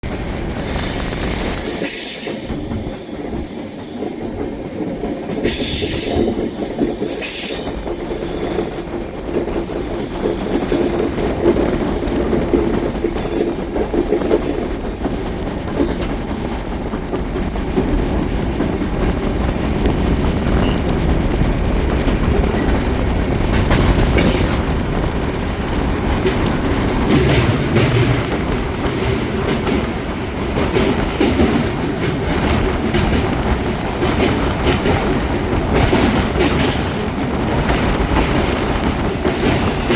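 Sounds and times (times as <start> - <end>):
train rumbling on rails: 0.0 - 39.9
high-pitched wheel squeal: 0.6 - 2.6
wheels clattering over track: 4.0 - 25.1.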